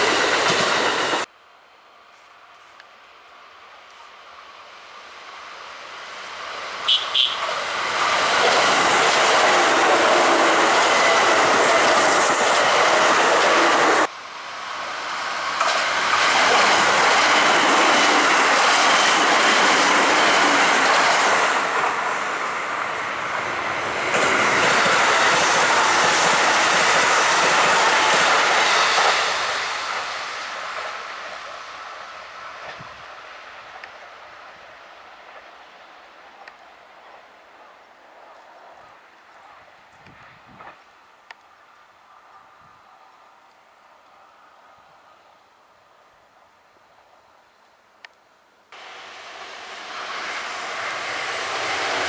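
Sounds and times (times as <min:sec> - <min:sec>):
electric trains rushing past: 0:00.0 - 0:01.3, 0:04.8 - 0:37.2, 0:48.8 - 0:52.0.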